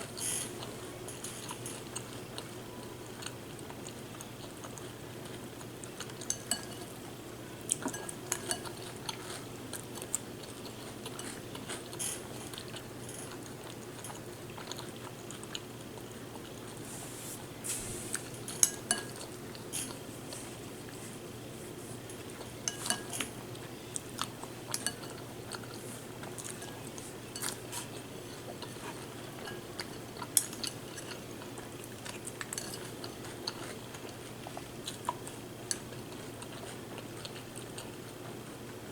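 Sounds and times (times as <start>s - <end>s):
chewing cereal: 0.0s - 38.9s
spoon clinking against bowl: 6.2s - 7.0s, 18.5s - 19.2s, 22.6s - 23.3s.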